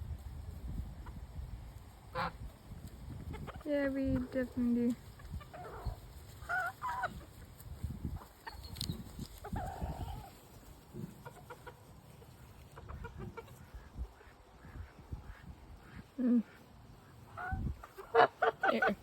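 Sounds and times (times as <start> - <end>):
chickens clucking: 0.6 - 19.0
rustling: 1.8 - 12.9.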